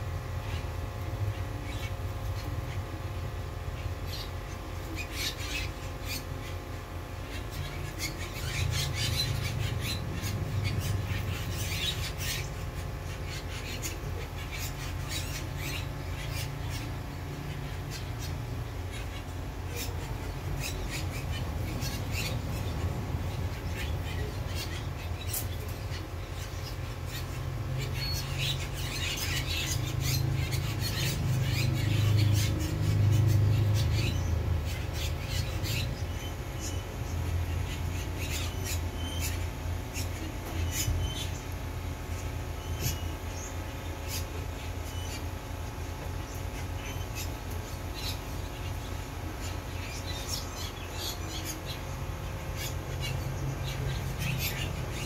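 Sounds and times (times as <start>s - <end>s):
birds chirping and squawking: 0.0s - 55.0s.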